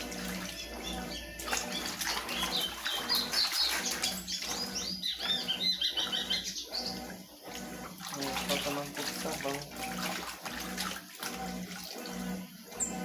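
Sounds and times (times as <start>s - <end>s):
low steady hum: 0.0s - 7.2s
water churning in washing machine: 0.0s - 13.0s
bird chirping rapidly: 0.6s - 7.1s.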